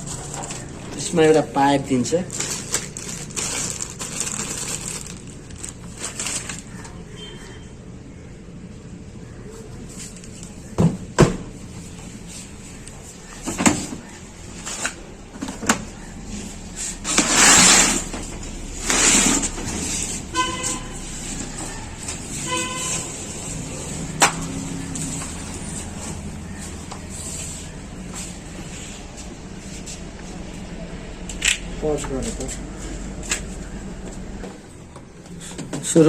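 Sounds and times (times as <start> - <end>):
rustling or scraping: 0.0 - 7.0, 9.6 - 10.7, 11.7 - 30.7.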